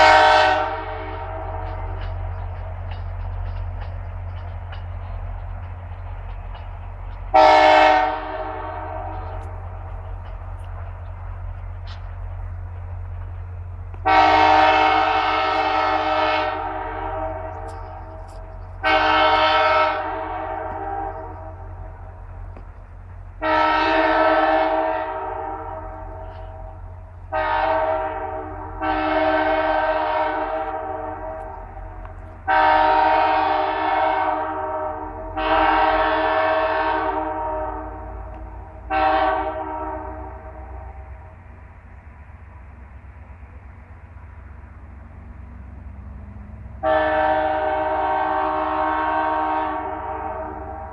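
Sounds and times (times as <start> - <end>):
locomotive horn blasts: 0.0 - 2.2, 7.3 - 9.6, 14.0 - 22.1, 23.4 - 41.3, 46.8 - 50.9
low train rumble: 0.0 - 50.9.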